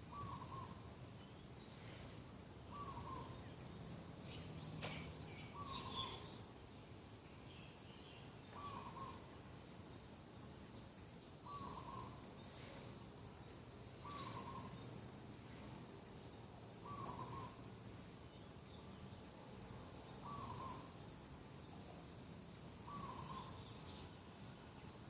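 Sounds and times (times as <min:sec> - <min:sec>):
faint bird chirps: 0:00.0 - 0:06.5, 0:07.3 - 0:13.1, 0:13.9 - 0:22.0, 0:22.7 - 0:24.3
dove cooing: 0:00.1 - 0:00.8, 0:02.7 - 0:03.3, 0:08.6 - 0:09.2, 0:11.5 - 0:12.2, 0:14.0 - 0:14.7, 0:16.8 - 0:17.6, 0:20.2 - 0:20.9, 0:22.9 - 0:23.6.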